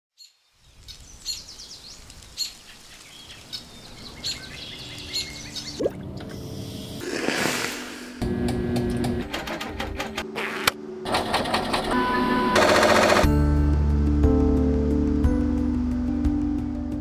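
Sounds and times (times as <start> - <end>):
outdoor background noise: 0.1 - 13.3
birds chirping: 0.2 - 7.0.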